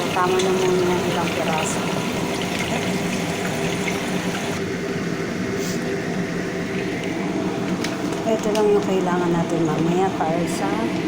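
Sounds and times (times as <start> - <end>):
chicken wings frying in a pan: 0.0 - 4.6
low mechanical hum: 0.0 - 11.0.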